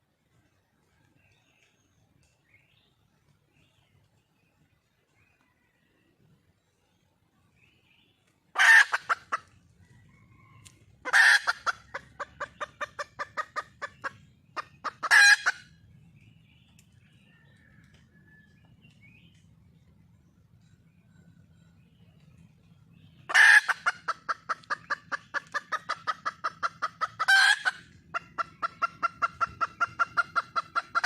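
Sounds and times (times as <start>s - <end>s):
faint bird chirps: 0.8s - 8.4s, 15.7s - 23.4s
junglefowl hen squawking call: 8.5s - 9.6s, 10.3s - 15.8s, 23.3s - 31.0s
hen clucking: 8.6s - 15.8s, 22.8s - 31.0s.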